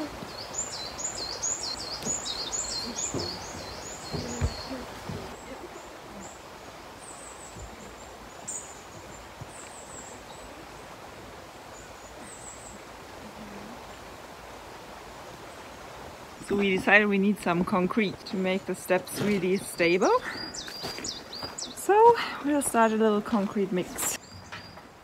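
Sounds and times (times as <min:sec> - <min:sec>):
small bird chirping: 0:00.0 - 0:06.4
rocks and earth knocking: 0:01.8 - 0:05.4.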